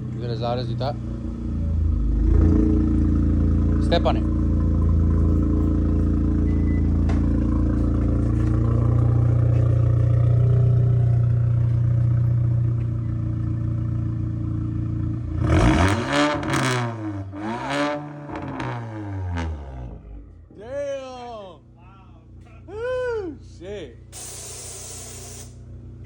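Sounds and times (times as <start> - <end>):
engine revving through exhaust: 0.0 - 12.9, 13.6 - 20.2.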